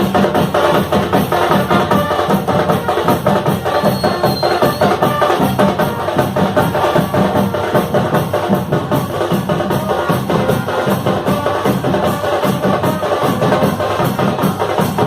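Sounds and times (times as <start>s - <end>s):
fanfare horns: 0.0s - 15.0s
marching drums: 0.0s - 15.0s.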